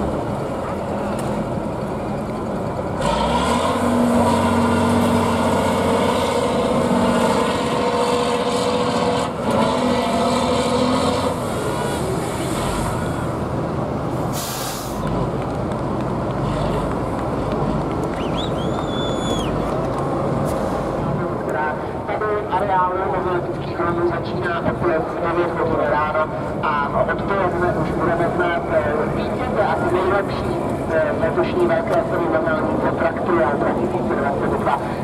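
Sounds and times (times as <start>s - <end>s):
truck engine revving: 0.0s - 21.2s
air brake hiss: 14.3s - 15.0s.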